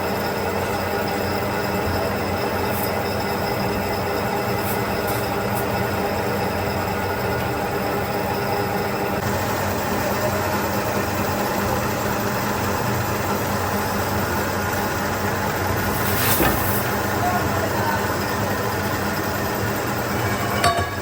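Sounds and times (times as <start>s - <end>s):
factory machinery humming: 0.0s - 21.0s
high hiss: 15.8s - 17.0s.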